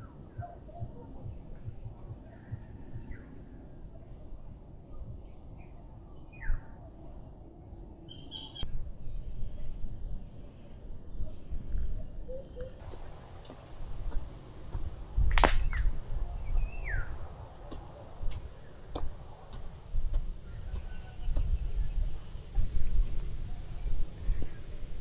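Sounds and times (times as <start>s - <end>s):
bird chirping: 12.3s - 22.4s.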